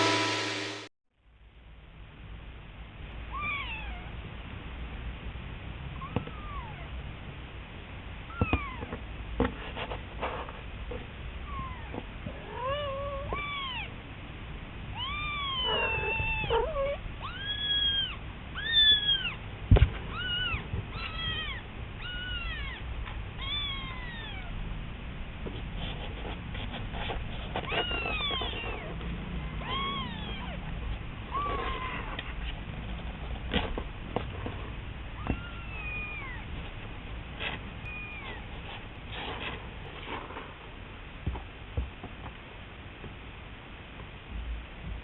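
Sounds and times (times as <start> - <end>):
kitten meowing: 6.0 - 6.9, 11.4 - 14.0, 14.9 - 19.4, 20.1 - 22.8, 23.4 - 24.6, 27.6 - 30.6, 35.2 - 36.5, 37.9 - 38.5.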